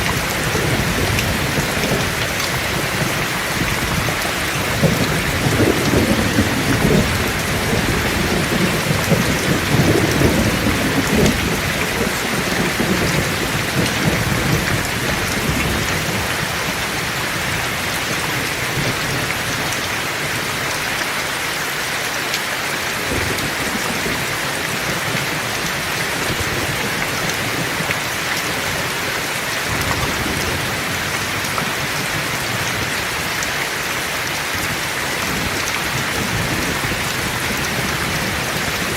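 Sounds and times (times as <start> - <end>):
thunder rumbling: 0.0 - 19.7, 34.5 - 38.9
heavy rain falling: 0.0 - 38.9.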